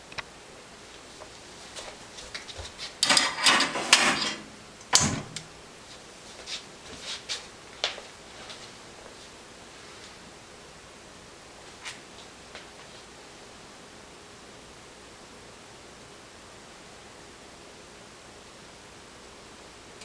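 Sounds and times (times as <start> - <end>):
rattling scrape: 3.0 - 4.5.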